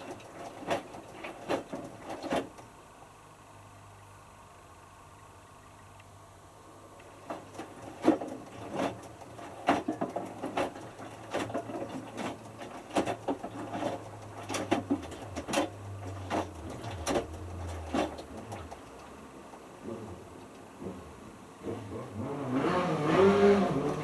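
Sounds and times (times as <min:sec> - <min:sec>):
washing machine drum tumbling: 0:00.0 - 0:02.6, 0:07.2 - 0:19.1
drum motor hum: 0:00.0 - 0:02.7, 0:07.0 - 0:19.2, 0:19.8 - 0:24.0.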